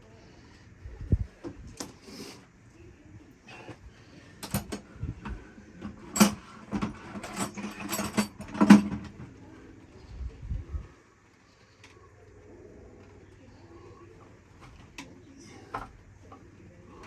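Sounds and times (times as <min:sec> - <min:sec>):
tools knocking and rattling: 0:04.4 - 0:09.3.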